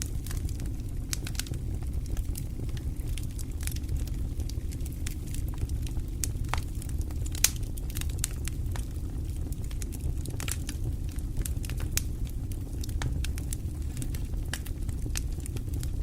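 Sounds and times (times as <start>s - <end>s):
low rumble of flames: 0.0s - 16.0s
wood fire crackling: 0.0s - 16.0s
sharp pops of fire: 5.4s - 9.0s.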